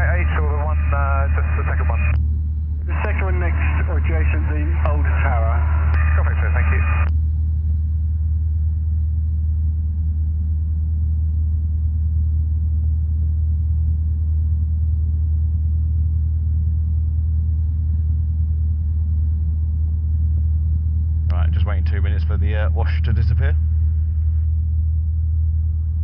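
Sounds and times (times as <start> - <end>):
aircraft engine idling: 0.0 - 7.2.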